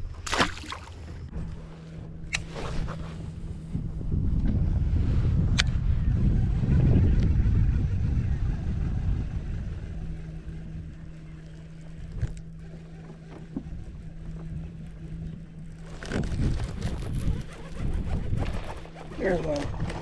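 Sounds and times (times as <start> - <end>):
boat motor droning: 0.0 - 20.0
wind and water rumble: 0.0 - 20.0.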